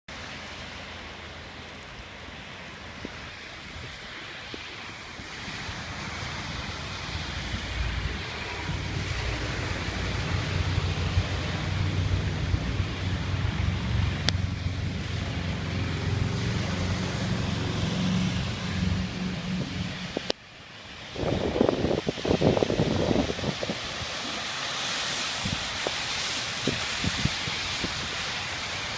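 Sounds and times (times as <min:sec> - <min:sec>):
water rushing into drain: 0:00.2 - 0:20.3.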